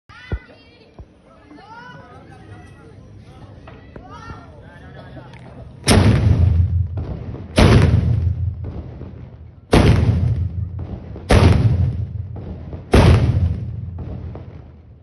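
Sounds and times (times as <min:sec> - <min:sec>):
cannon booms with rumble: 0:05.8 - 0:14.8.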